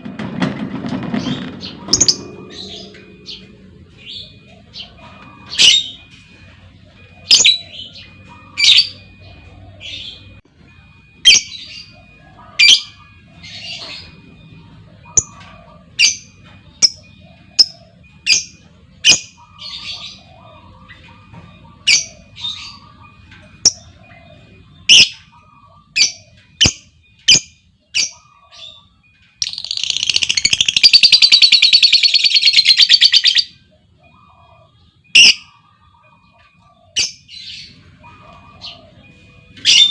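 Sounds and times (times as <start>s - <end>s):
bird chattering trill: 21.7s - 36.2s.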